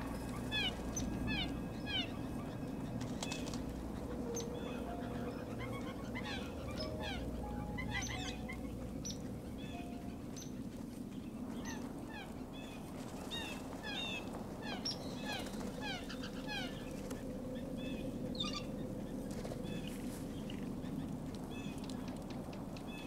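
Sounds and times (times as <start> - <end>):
low bird notes: 0.0 - 11.9
birds chirping: 0.0 - 22.2
steady low hum: 0.0 - 23.0.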